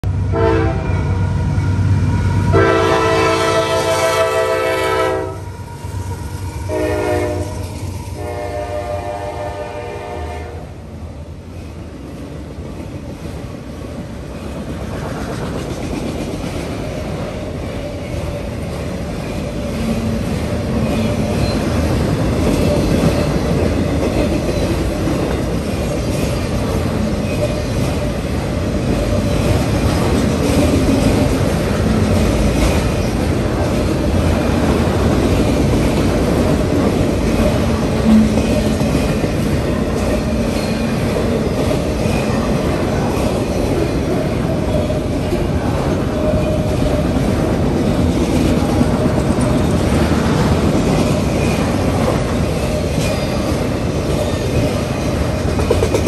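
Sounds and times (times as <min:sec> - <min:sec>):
locomotive horn blasts: 0:00.3 - 0:01.2, 0:02.5 - 0:05.5, 0:06.7 - 0:07.6, 0:08.2 - 0:10.7.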